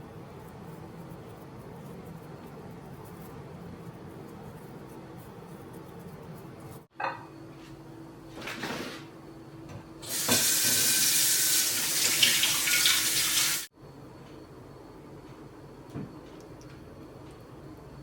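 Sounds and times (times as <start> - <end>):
tap water running into sink: 10.0 - 13.7.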